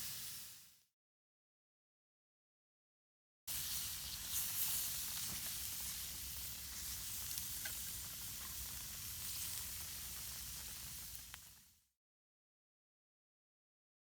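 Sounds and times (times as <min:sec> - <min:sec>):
food sizzling in a pan: 0:00.0 - 0:00.8, 0:03.5 - 0:11.8.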